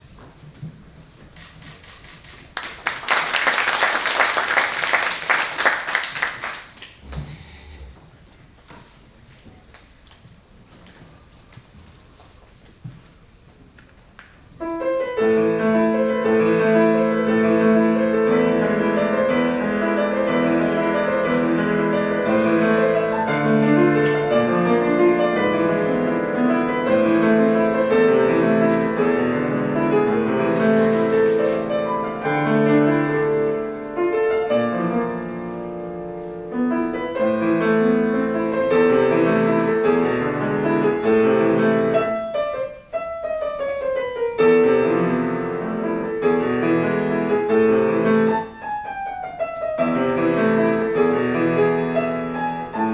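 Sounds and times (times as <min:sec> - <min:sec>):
solo piano classical piece: 0:14.6 - 0:52.9.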